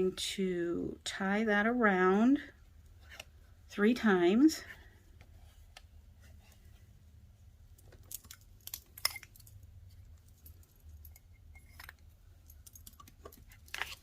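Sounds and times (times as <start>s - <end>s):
card stock rustling: 13.1s - 14.0s.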